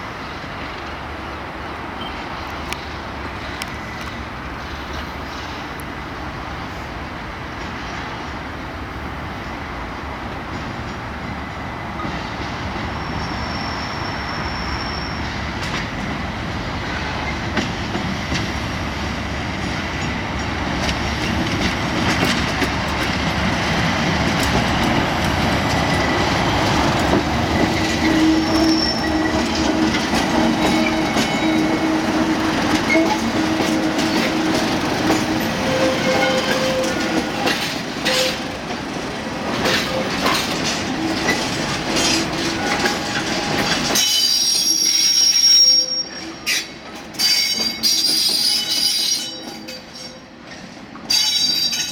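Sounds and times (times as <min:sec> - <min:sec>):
diesel locomotive engines: 0:00.0 - 0:51.9
rail-joint clicks: 0:02.0 - 0:06.0, 0:10.4 - 0:11.2, 0:11.9 - 0:13.4, 0:14.6 - 0:16.2, 0:16.8 - 0:18.7, 0:19.5 - 0:51.9
wheel squeals: 0:13.0 - 0:15.4, 0:27.5 - 0:38.5, 0:39.6 - 0:50.3.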